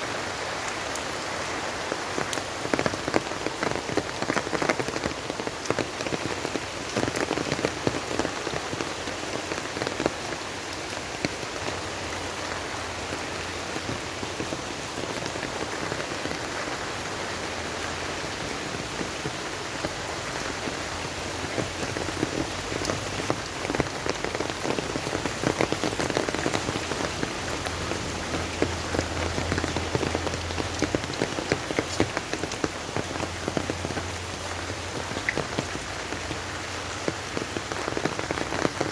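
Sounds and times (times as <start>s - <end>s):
raindrops ticking on a surface: 0.0s - 38.9s
steady rain hissing: 0.0s - 38.9s.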